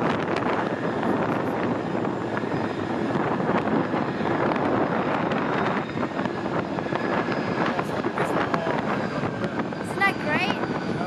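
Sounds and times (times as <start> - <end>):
engine noise: 0.0 - 11.0
wind on microphone: 0.0 - 11.0.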